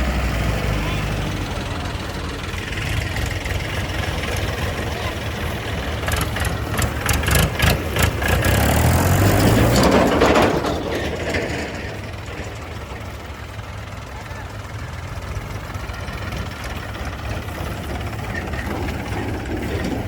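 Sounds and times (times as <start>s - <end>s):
heavy diesel engine running: 0.0s - 20.0s
sharp metallic knocks and clanks: 6.1s - 13.2s.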